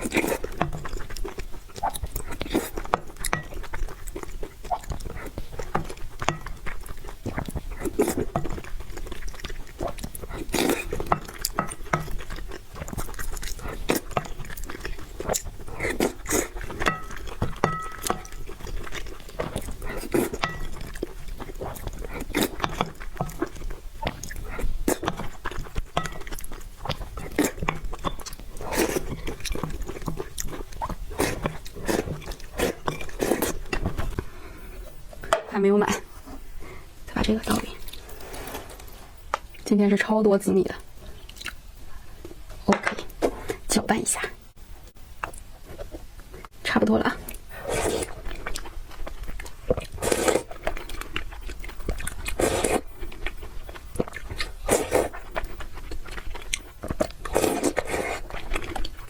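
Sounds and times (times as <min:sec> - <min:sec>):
person chewing and smacking: 0:00.0 - 0:35.3, 0:41.2 - 0:43.7, 0:47.3 - 0:59.0
wet mouth clicks: 0:41.3 - 0:41.6.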